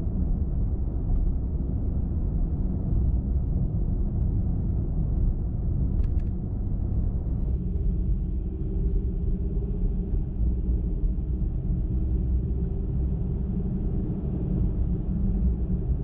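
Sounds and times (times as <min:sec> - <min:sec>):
car driving on highway: 0:00.1 - 0:16.0.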